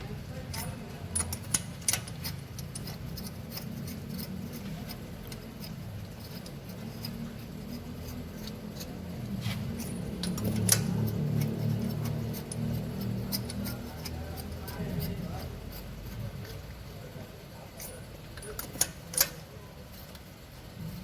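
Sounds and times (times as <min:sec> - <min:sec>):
steady low hum: 0:00.0 - 0:21.0
metallic clicks of hand tools: 0:00.5 - 0:09.0, 0:09.7 - 0:14.8, 0:17.8 - 0:19.4.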